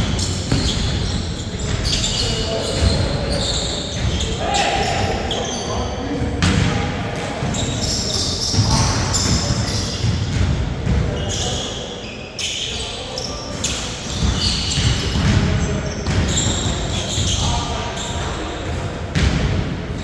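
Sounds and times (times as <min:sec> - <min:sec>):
basketball bouncing on a court: 0:00.0 - 0:04.4, 0:07.4 - 0:11.6, 0:13.5 - 0:20.0.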